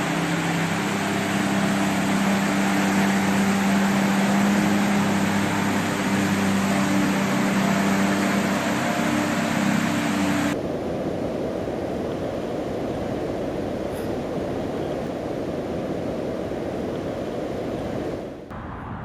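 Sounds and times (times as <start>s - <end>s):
road traffic: 0.0s - 10.6s, 18.4s - 19.0s.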